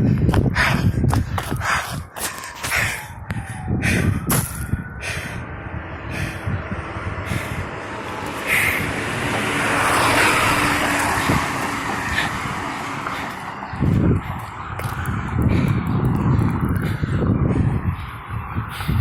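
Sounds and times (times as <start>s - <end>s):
heavy vehicle driving past: 5.4s - 13.8s.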